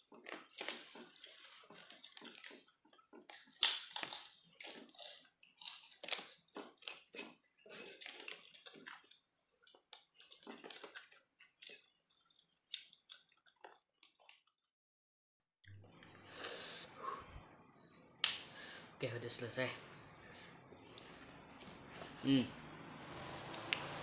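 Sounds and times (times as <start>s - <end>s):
person chewing with wet smacking: 0.0s - 14.7s.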